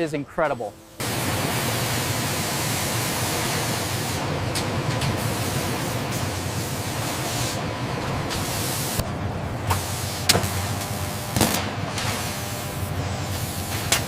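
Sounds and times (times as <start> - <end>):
industrial hiss: 0.0 - 14.0.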